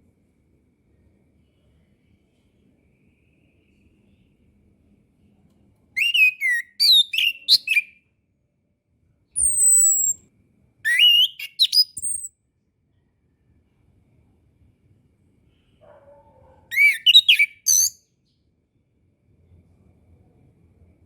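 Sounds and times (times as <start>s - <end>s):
thrush singing whistled notes: 6.0s - 7.9s, 9.4s - 10.2s, 10.9s - 12.3s, 16.7s - 18.0s.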